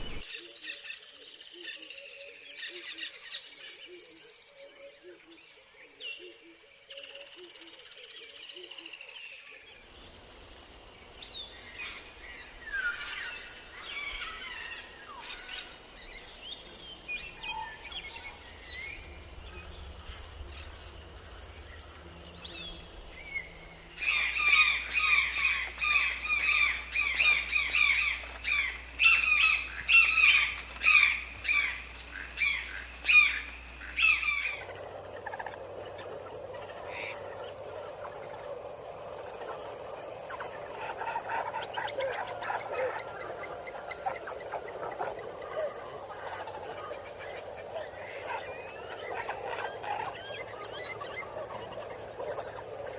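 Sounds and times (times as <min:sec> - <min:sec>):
steady low hum: 0:00.0 - 0:00.2, 0:09.9 - 0:52.9
quick repeated bird calls: 0:00.0 - 0:00.3
birds chirping and whistling: 0:11.2 - 0:34.8.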